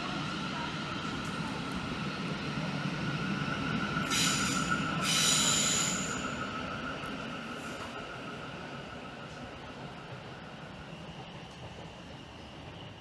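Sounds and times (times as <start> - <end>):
electric train whine: 0.0 - 13.0.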